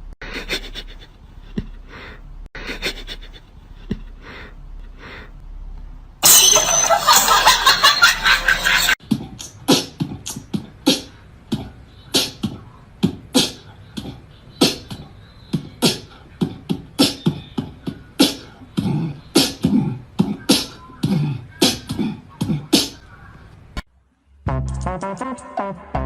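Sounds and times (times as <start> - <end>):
beatboxing percussive hits: 9.0 - 23.0.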